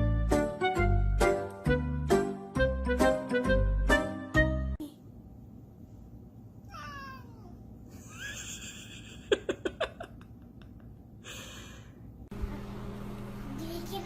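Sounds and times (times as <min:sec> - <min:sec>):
cat meowing: 0:06.7 - 0:07.6.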